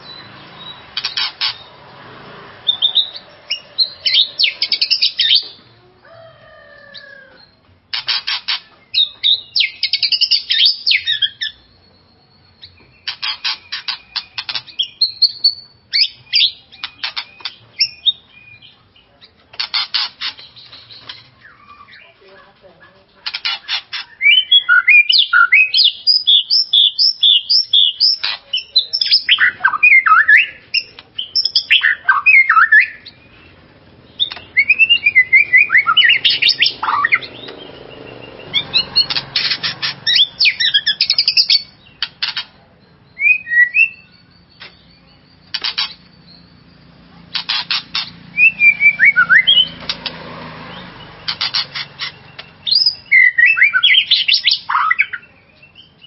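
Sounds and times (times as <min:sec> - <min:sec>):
bird singing whistled notes and trills: 0:00.0 - 0:02.0, 0:02.6 - 0:05.6, 0:06.8 - 0:22.2, 0:23.3 - 0:56.0.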